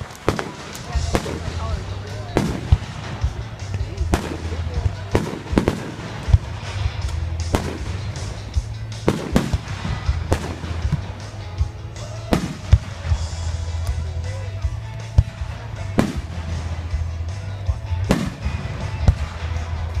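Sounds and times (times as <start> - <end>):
small firework pops: 0.0 - 1.4, 2.4 - 8.0
fireworks bangs: 0.0 - 13.6, 15.1 - 17.1, 18.0 - 20.0
background music: 0.0 - 20.0.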